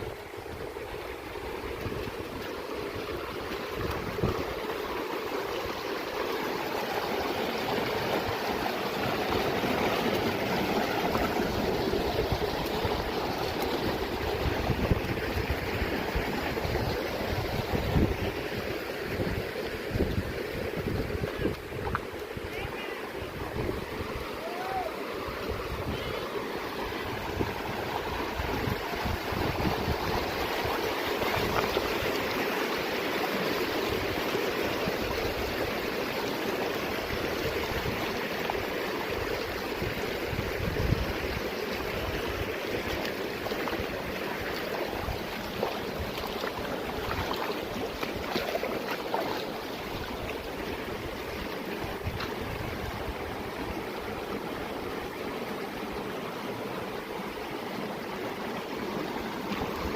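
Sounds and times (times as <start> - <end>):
stream flowing: 0.0 - 59.9.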